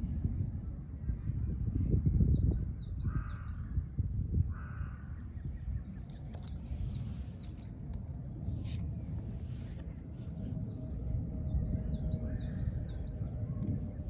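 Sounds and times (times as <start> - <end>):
bird cawing: 4.5 - 5.2
low rustle with light clicks: 6.0 - 10.8.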